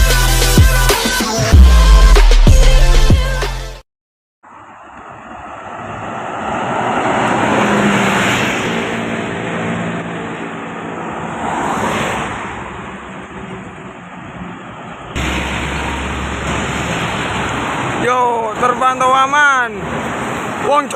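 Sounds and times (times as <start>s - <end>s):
motor vehicles passing by: 4.5s - 20.9s
steady engine drone: 13.0s - 18.0s.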